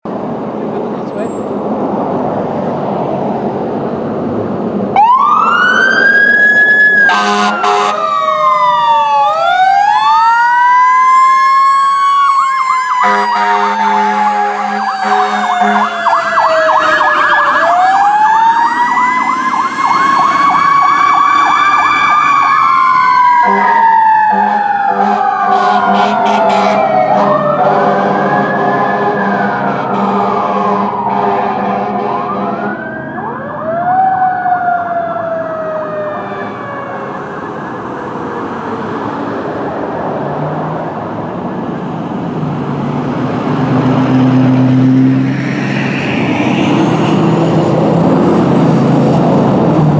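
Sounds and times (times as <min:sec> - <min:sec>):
fire engine siren wailing: 0:03.5 - 0:49.9
truck air horn blasts: 0:07.1 - 0:08.0, 0:13.0 - 0:15.9, 0:23.4 - 0:28.2, 0:29.0 - 0:32.8.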